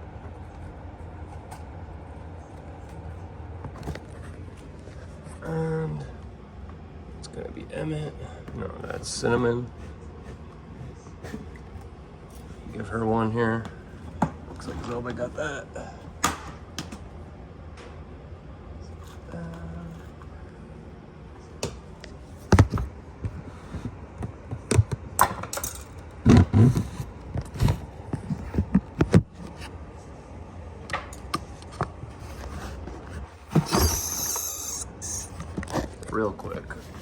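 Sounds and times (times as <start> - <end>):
faint low hum: 0.0 - 37.0
objects knocking and scraping: 22.3 - 29.7.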